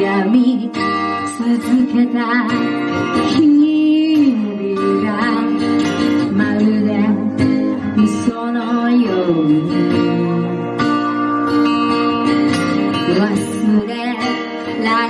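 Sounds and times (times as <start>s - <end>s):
live folk-pop band music: 0.0s - 15.0s.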